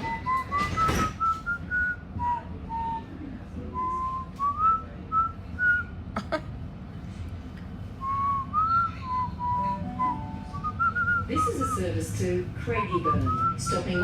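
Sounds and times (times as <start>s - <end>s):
person whistling a tune: 0.0s - 5.9s, 8.0s - 11.8s, 12.8s - 14.0s.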